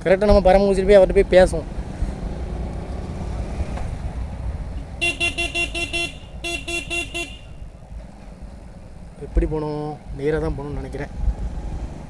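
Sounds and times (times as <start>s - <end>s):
motorcycle riding rumble: 0.0s - 12.0s
vehicle horn rapid beeps: 5.0s - 7.7s.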